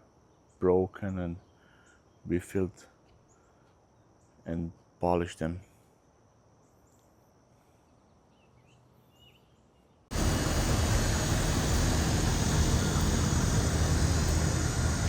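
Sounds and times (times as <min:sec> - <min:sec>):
faint bird chirps: 0:00.2 - 0:04.8, 0:05.6 - 0:10.1
loud steady rushing noise: 0:10.1 - 0:15.0
low hum: 0:10.1 - 0:15.0.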